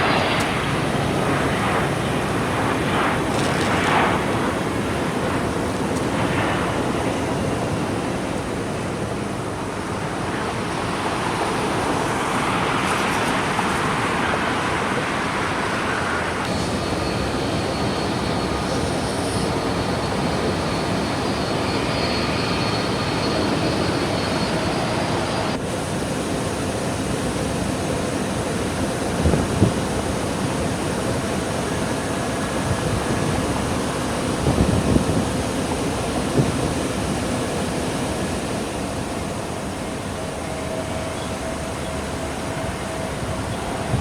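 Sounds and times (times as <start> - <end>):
high whine: 0.0 - 25.6
jet engines roaring: 0.0 - 44.0.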